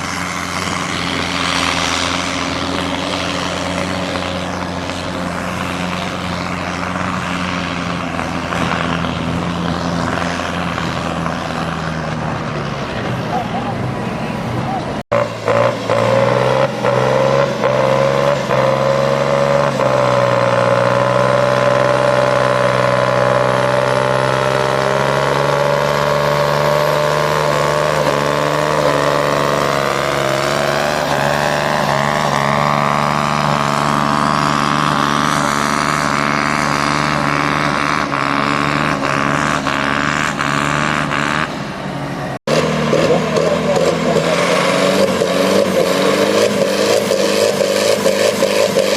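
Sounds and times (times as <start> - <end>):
engine running: 0.0 - 48.9
tractor engine running hard: 0.0 - 48.9.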